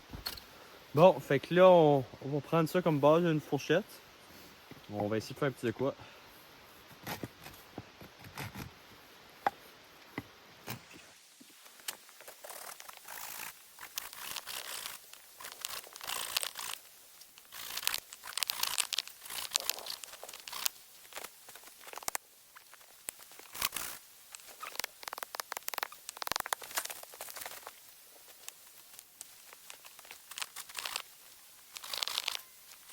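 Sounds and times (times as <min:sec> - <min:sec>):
knife scraping wood: 0:12.3 - 0:16.8.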